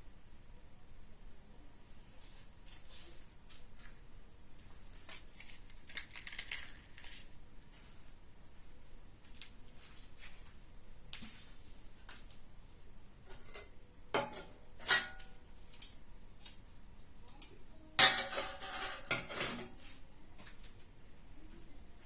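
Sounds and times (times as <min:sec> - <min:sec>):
metal cookware clanking: 0:13.3 - 0:15.4, 0:17.4 - 0:19.8.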